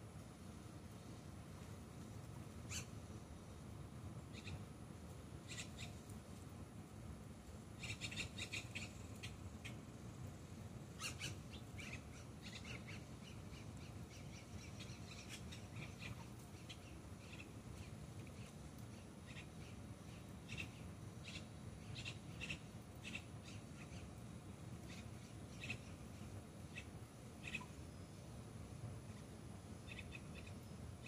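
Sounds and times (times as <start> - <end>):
low steady rumble: 0.0 - 31.0
birds calling: 2.6 - 3.0, 4.2 - 4.7, 5.4 - 6.2, 7.8 - 9.9, 10.8 - 27.9, 29.0 - 31.0.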